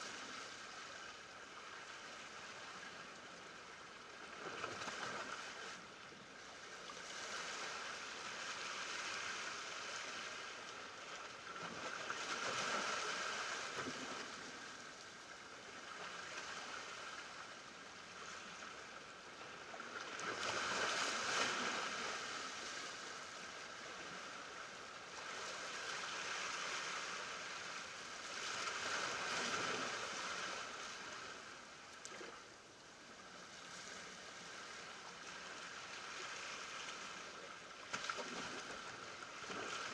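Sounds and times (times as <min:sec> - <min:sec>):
small waves washing against rocks: 0:20.2 - 0:23.0.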